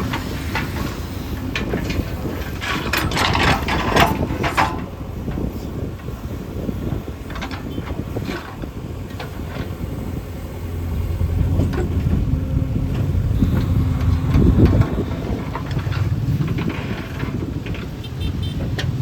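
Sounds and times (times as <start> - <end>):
short knocks and clatters: 0.0 - 6.2
diesel engine of machinery running: 0.0 - 19.0.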